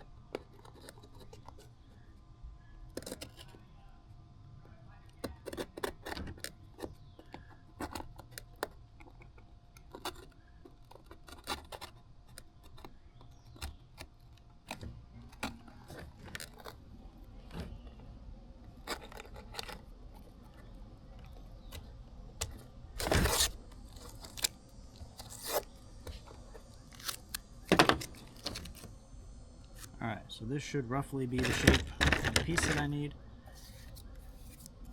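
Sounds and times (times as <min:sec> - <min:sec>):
small clicks taps and scrapes: 0:00.3 - 0:02.0, 0:02.9 - 0:03.6, 0:04.6 - 0:16.8, 0:17.4 - 0:22.7, 0:31.4 - 0:33.0
rustling scrape: 0:23.0 - 0:28.9, 0:31.4 - 0:34.7.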